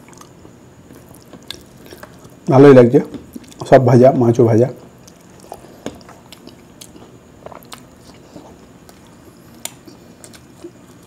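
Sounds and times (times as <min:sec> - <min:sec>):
person chewing food: 0:00.0 - 0:02.5, 0:03.1 - 0:03.6, 0:04.9 - 0:11.0.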